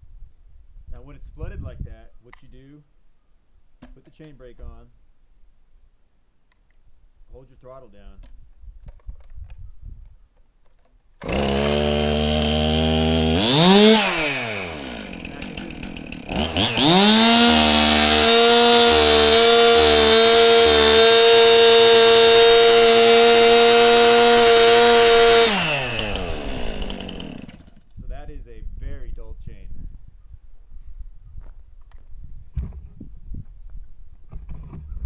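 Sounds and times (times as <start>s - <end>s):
chainsaw revving: 11.2s - 27.9s.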